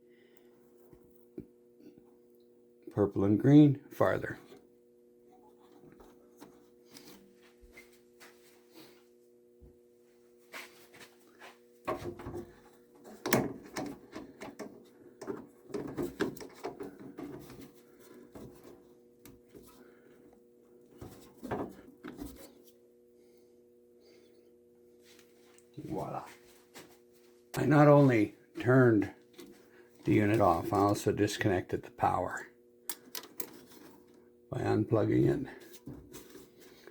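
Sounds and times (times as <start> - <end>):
faint steady hum: 0.0 - 36.9
clicks and rattles of parts: 11.9 - 17.8, 32.9 - 34.0.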